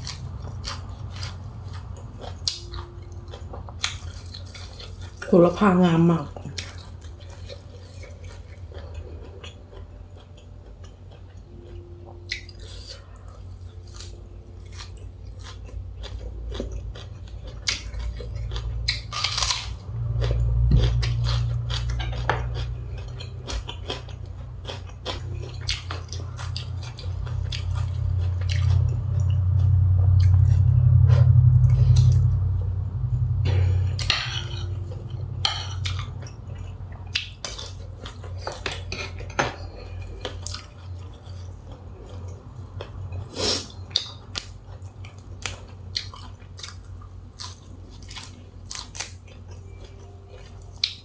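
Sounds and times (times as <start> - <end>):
chewing with wet mouth clicks: 0.0 - 5.2, 6.4 - 30.7, 34.9 - 51.0
low rumble: 13.0 - 38.3.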